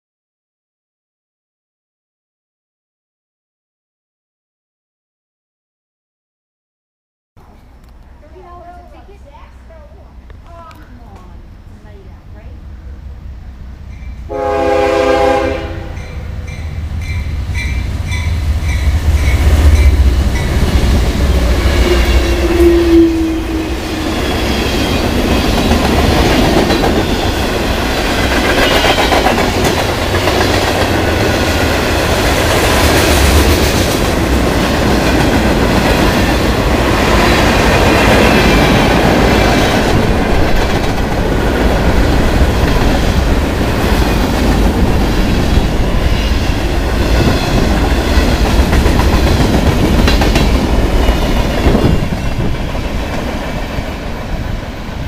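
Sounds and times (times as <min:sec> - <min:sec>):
train horn blast: 0:14.3 - 0:16.6, 0:21.6 - 0:24.2
train cars clattering over rails: 0:23.6 - 0:54.5.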